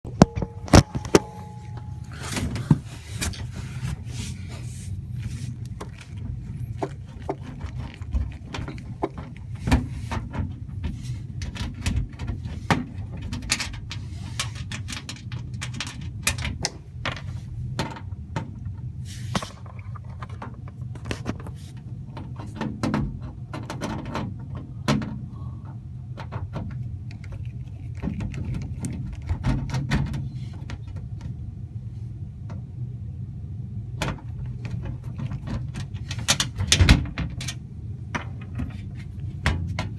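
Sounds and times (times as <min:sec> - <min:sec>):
steady low hum: 0:00.0 - 0:39.9
two-note tone: 0:00.1 - 0:02.5
hands handling access panel: 0:00.1 - 0:03.5.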